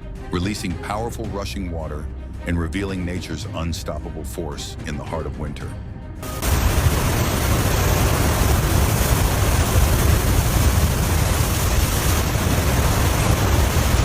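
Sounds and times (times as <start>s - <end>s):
meltwater rushing: 6.3s - 14.0s
ice breaking with low rumble: 6.4s - 14.0s.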